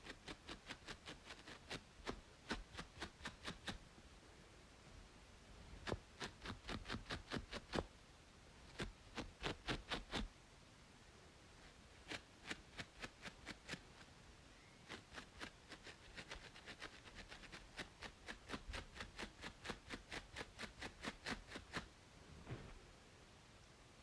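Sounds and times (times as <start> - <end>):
scratching on a braided scalp: 0.0 - 3.8, 5.7 - 7.9, 8.6 - 10.3, 11.6 - 14.1, 14.8 - 21.9
steady white-noise hiss: 0.0 - 24.0.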